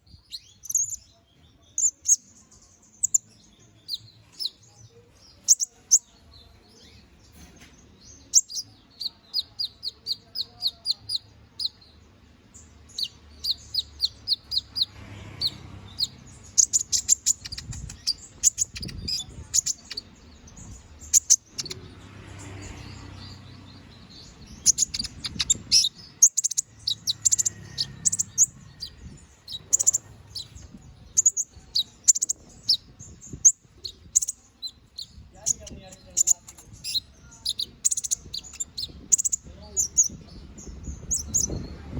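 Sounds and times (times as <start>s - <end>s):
canary singing: 0.0s - 41.9s.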